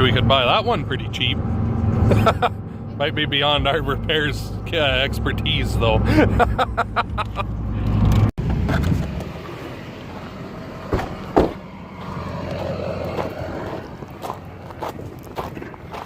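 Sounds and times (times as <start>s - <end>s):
truck rumble from inside cab: 0.0s - 16.0s
sharp knocks: 10.9s - 11.7s.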